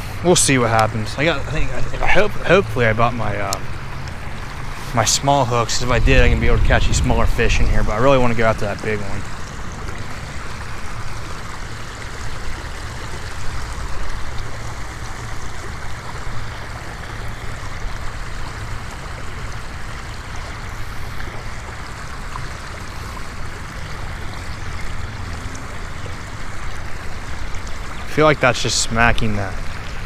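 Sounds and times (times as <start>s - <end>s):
strong wind buffeting microphone: 5.6s - 8.5s.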